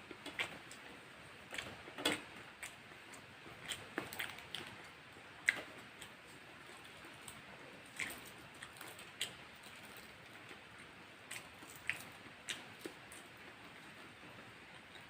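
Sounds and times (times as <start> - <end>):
mouth clicks and smacks chewing: 2.6 - 13.6.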